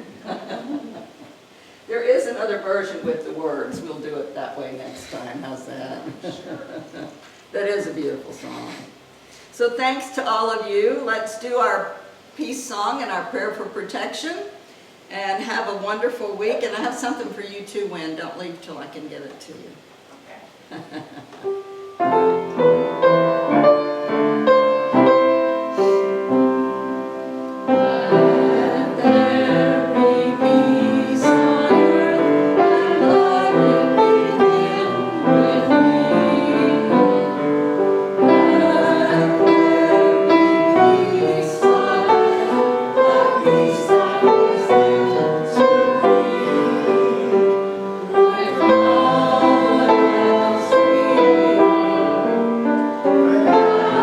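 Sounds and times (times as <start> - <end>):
piano: 21.3 - 54.0
congregation singing: 21.5 - 54.0.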